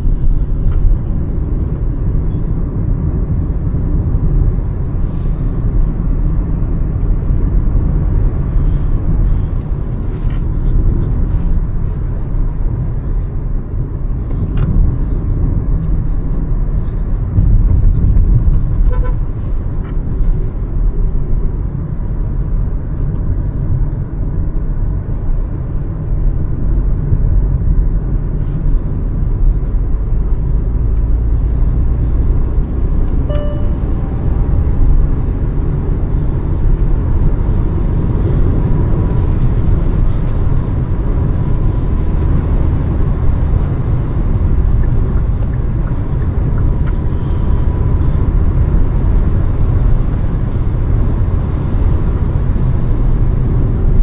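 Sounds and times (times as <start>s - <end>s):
car engine and road rumble: 0.0s - 54.0s
faint whine: 33.0s - 35.1s
short tone: 33.2s - 34.2s.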